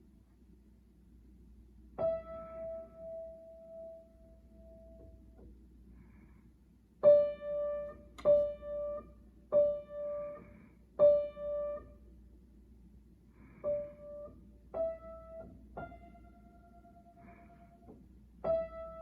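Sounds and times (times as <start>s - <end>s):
piano notes played slowly: 2.0s - 5.6s, 7.0s - 12.1s, 13.3s - 19.0s.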